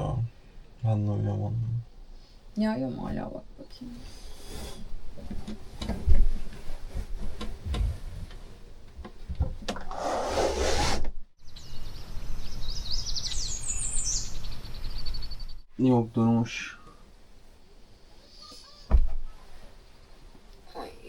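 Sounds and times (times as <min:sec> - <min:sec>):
rustling scrape: 0:05.6 - 0:08.6, 0:09.9 - 0:11.1
birds chirping: 0:11.4 - 0:16.8
thumps and handling noises: 0:18.9 - 0:19.6.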